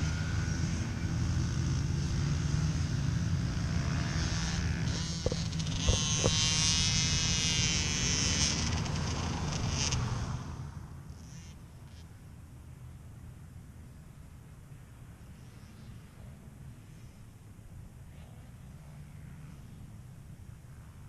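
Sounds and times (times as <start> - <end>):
dirt bike engine buzzing: 0.0 - 12.0.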